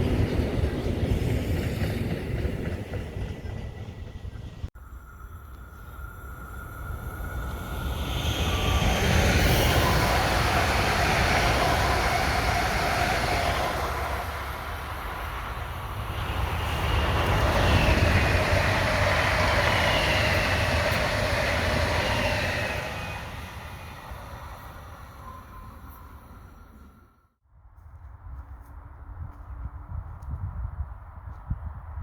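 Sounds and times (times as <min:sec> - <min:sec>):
train wheels rushing on rails: 0:00.0 - 0:04.7, 0:06.2 - 0:27.0.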